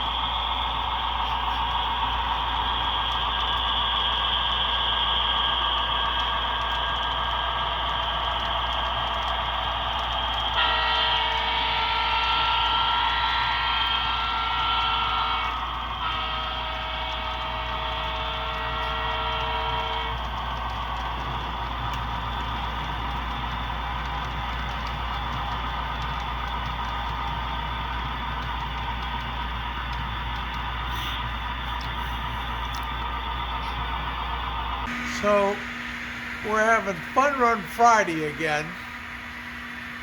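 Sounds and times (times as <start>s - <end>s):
model train running: 0.0s - 40.0s
multi-tone train horn blasts: 10.5s - 20.4s.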